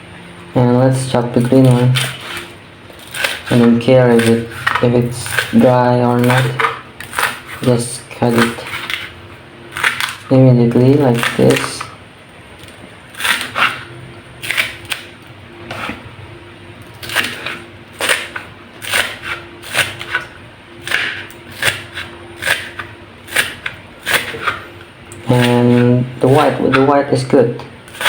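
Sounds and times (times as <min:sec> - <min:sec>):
knife chopping onions on cutting board: 0:00.9 - 0:09.1, 0:17.0 - 0:24.6.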